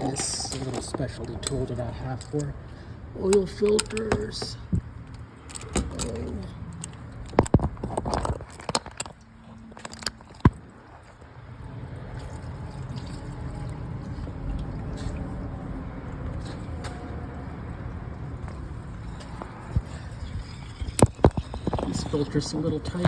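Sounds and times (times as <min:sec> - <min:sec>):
metal tool clinks and knocks: 0:00.0 - 0:02.5.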